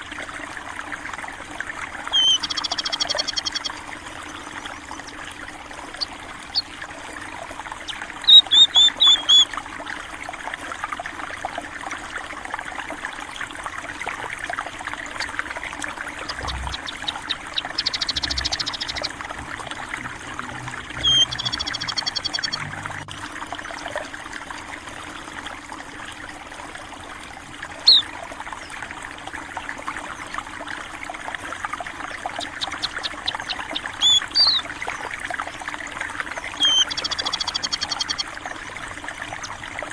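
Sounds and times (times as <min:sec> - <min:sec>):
water trickling: 0:00.0 - 0:39.9
small birds chirping: 0:02.1 - 0:06.8, 0:07.8 - 0:09.5, 0:16.1 - 0:20.1, 0:20.8 - 0:22.9, 0:27.8 - 0:28.1, 0:32.2 - 0:35.1, 0:36.3 - 0:39.7.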